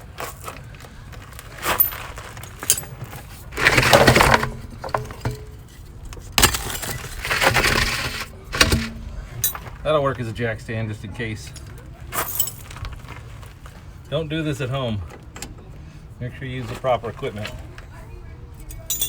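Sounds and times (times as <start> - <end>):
metal parts knocking and clattering: 1.5 - 9.8, 18.7 - 19.0
rattling scraping bursts: 1.5 - 10.2.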